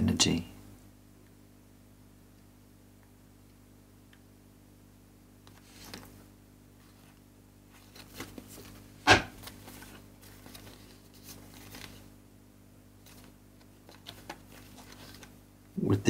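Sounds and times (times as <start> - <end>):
cards rustling and sliding: 5.5 - 6.2, 6.8 - 12.1, 13.0 - 15.4.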